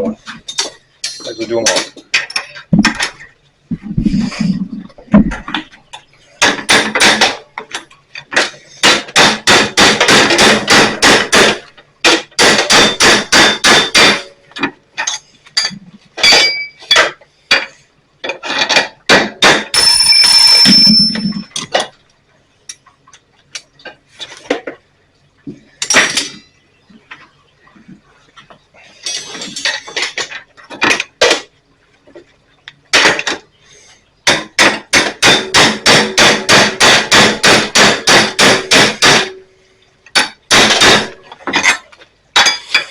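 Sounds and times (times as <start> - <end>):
ringing metallic clang: 0.5 - 2.6, 15.1 - 17.0, 19.6 - 21.6
hammer striking steel punch: 8.8 - 14.3, 34.3 - 39.4.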